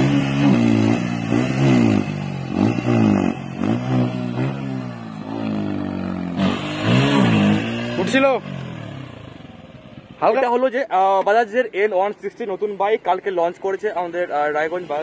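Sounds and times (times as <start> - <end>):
motorcycle engine revving: 0.0 - 10.7.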